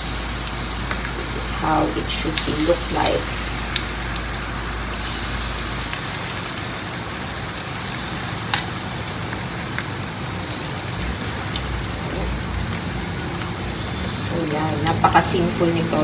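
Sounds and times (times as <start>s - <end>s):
oil crackles and pops: 0.0s - 15.3s
batter sizzling in oil: 0.0s - 16.0s.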